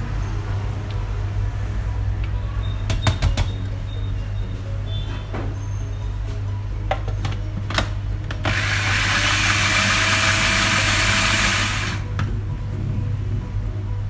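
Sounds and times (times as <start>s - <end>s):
blender clicks: 8.4s - 12.0s
electric blender running: 8.4s - 12.0s.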